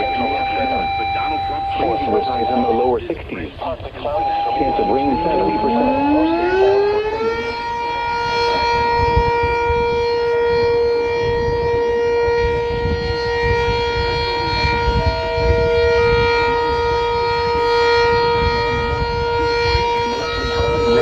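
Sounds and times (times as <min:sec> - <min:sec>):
warning siren: 0:00.0 - 0:21.0.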